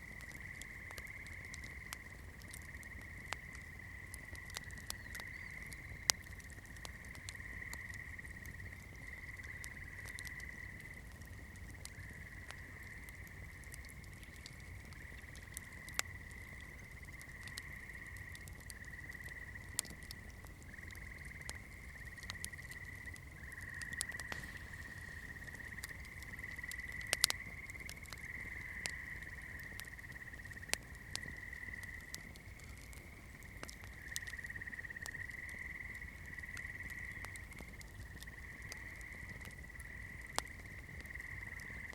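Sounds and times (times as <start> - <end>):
campfire crackling and popping: 0.0 - 41.9.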